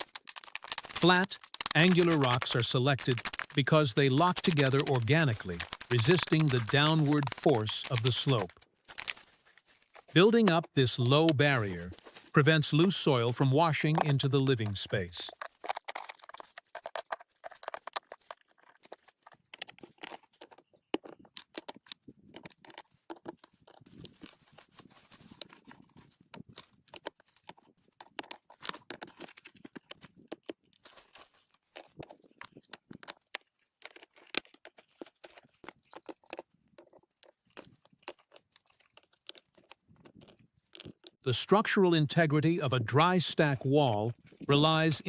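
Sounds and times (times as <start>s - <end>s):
gritty stone scrapes: 0.0s - 10.2s, 15.3s - 21.3s
stones knocking together: 0.0s - 14.8s.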